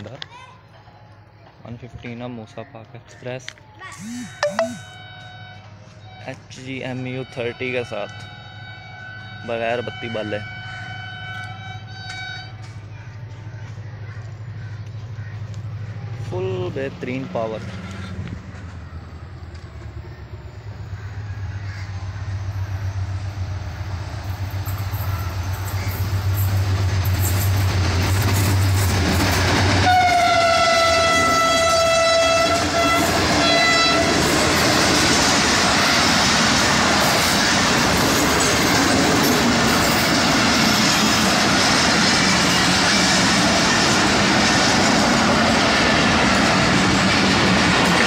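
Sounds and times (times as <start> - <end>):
train horn: 4.8 - 12.7, 29.8 - 34.2
locomotive engine drone: 10.6 - 48.0.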